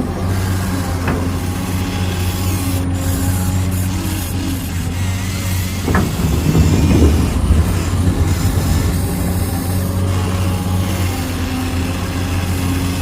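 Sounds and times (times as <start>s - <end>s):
small electric motors whirring: 0.0s - 7.0s, 7.8s - 13.0s
scraping and rattling: 2.3s - 13.0s.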